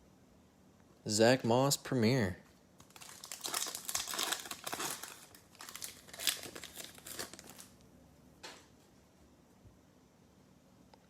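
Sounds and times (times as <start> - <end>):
plastic wrapper crinkling: 2.8 - 7.8.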